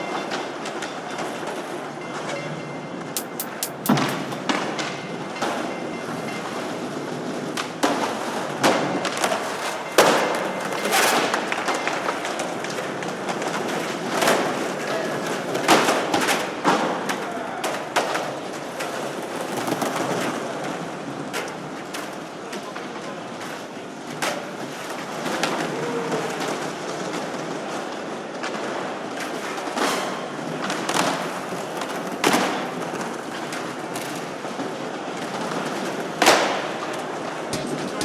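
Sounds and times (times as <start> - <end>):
experimental electronic music: 3.2 - 4.4, 37.5 - 38.0.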